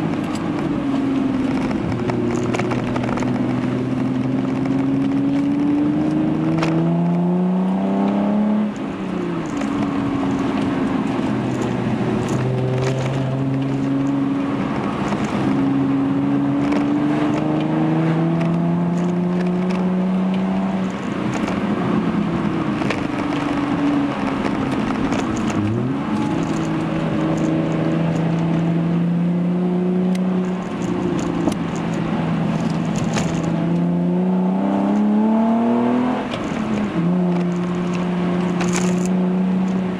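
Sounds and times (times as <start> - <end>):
car engine from inside cabin: 0.0 - 39.9.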